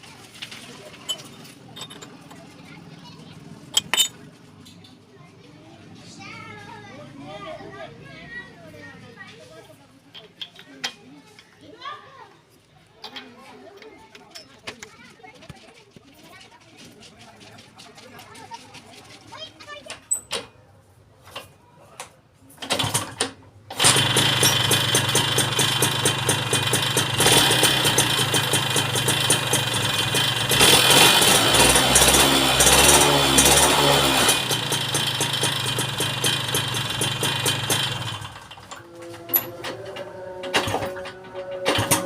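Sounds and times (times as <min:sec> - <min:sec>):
two-stroke motorcycle engine revving: 0:23.8 - 0:39.4, 0:40.5 - 0:42.0.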